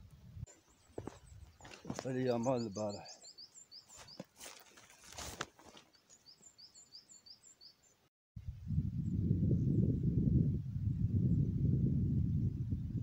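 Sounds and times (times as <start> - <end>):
small bird chirping: 0.5 - 4.3, 5.9 - 8.1
footsteps on trail: 0.5 - 6.8.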